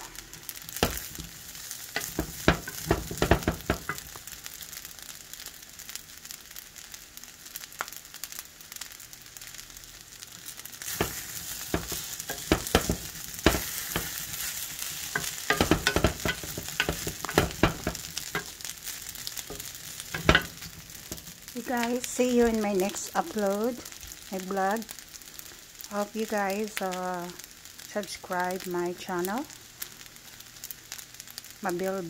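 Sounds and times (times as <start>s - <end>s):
rice sizzling in pan: 0.0s - 32.0s
wooden spatula scraping pan: 10.9s - 18.7s.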